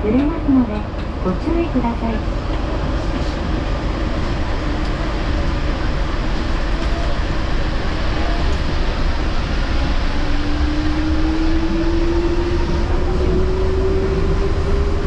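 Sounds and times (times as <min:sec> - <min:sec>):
train tyres rumbling: 0:00.0 - 0:15.0.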